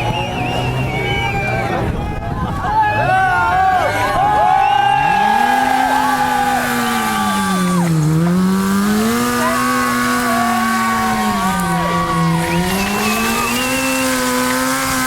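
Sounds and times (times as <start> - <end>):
motorcycle engine revving high: 3.0 - 15.0.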